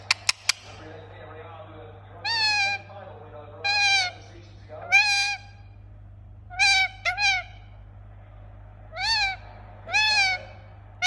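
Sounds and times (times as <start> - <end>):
parakeet calling: 2.2 - 5.8, 6.5 - 7.7, 8.9 - 10.7.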